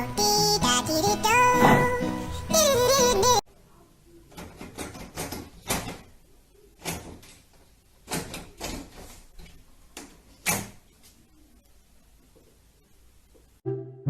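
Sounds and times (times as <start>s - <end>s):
door rattling and knocking: 4.4s - 6.1s.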